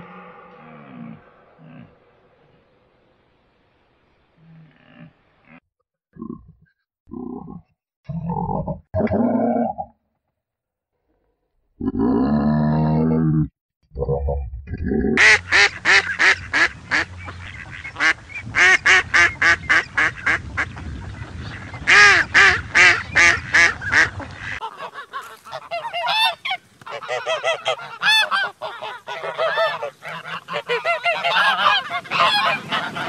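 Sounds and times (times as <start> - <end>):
geese honking: 15.2 - 33.0.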